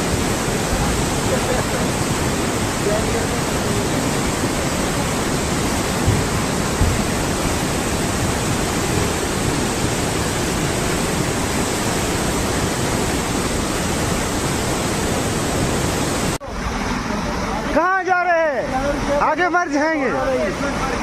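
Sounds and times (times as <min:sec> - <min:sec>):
rushing river: 0:00.0 - 0:21.0
low knocks: 0:05.8 - 0:08.2.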